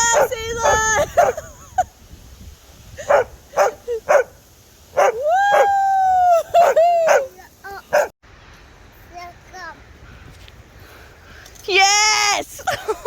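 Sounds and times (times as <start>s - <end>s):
dog yipping: 5.0s - 5.7s, 7.9s - 8.1s.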